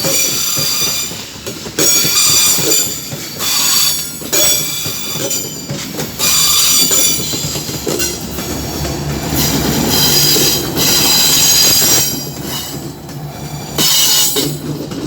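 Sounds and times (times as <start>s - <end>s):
train wheels rumbling on rail: 0.0s - 15.0s
steel wheel squeal: 1.8s - 8.2s, 9.4s - 12.7s.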